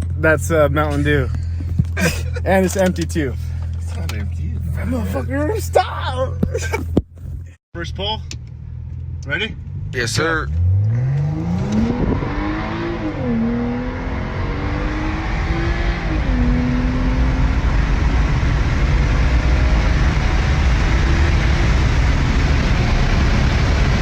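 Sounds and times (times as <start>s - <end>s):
road and wind noise: 0.0s - 24.0s
car engine accelerating hard: 8.8s - 24.0s.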